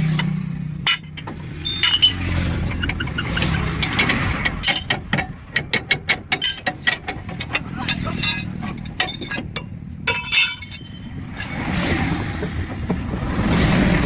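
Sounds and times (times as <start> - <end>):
tools clinking on metal: 0.0 - 11.6.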